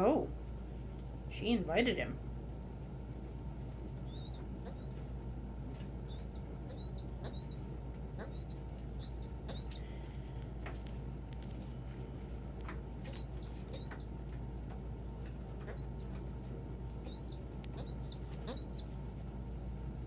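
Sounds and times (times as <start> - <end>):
steady low hum: 0.0 - 20.0
pigeon squeaky peeps: 4.0 - 5.1, 6.0 - 10.0, 13.0 - 14.2, 15.6 - 16.2, 17.0 - 19.0.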